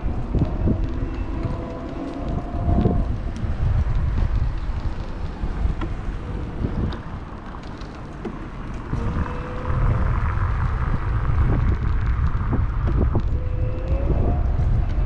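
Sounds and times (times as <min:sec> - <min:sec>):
wind buffeting microphone: 0:00.0 - 0:15.0
clicks and knocks from riding: 0:00.1 - 0:15.0.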